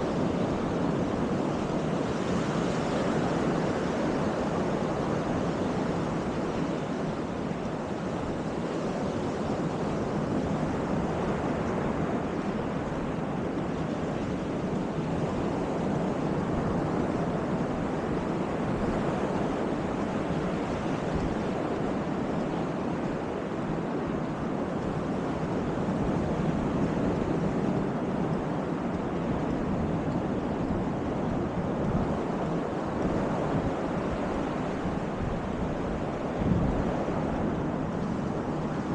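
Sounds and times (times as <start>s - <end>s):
surf washing onto beach: 0.0s - 38.9s
wind on microphone: 0.0s - 38.9s.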